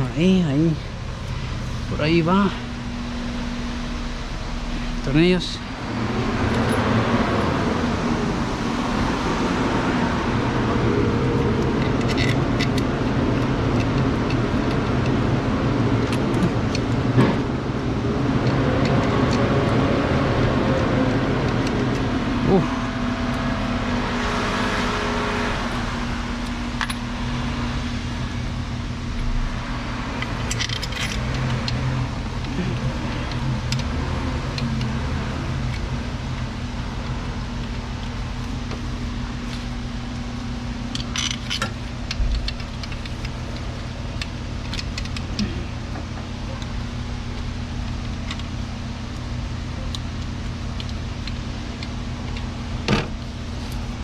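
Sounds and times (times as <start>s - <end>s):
low machine hum: 0.0s - 54.0s.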